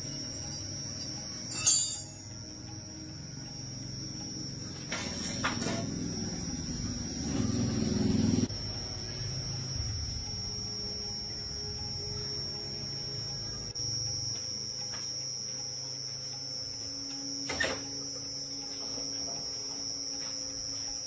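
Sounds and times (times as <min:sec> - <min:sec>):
motorcycle engine running: 0:03.8 - 0:11.4.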